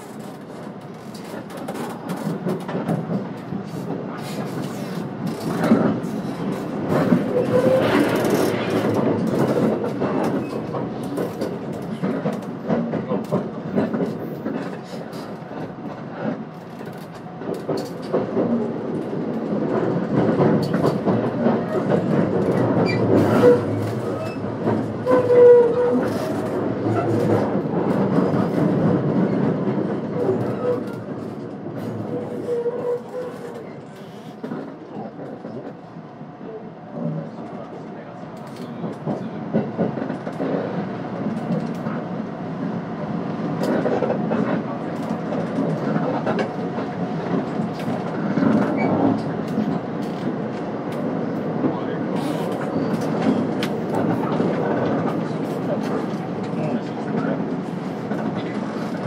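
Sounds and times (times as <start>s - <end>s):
wheels clicking over rail joints: 0.0s - 35.8s
train running rumble: 0.0s - 59.0s.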